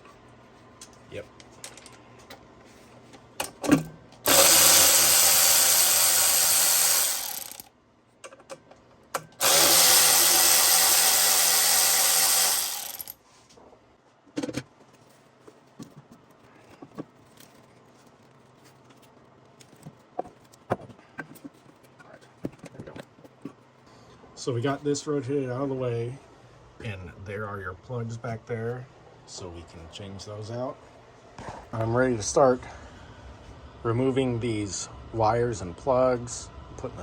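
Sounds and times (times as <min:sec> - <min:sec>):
cordless power driver running: 0:04.3 - 0:07.7, 0:09.4 - 0:13.2.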